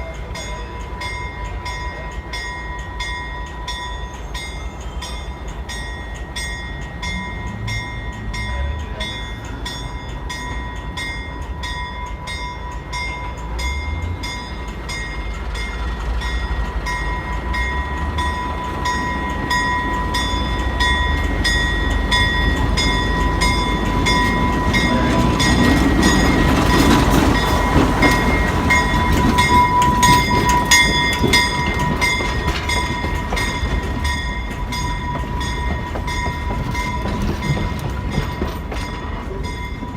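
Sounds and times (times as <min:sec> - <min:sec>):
diesel locomotive engine rumble: 0:00.0 - 0:39.9
bell ringing rapidly: 0:17.0 - 0:38.3.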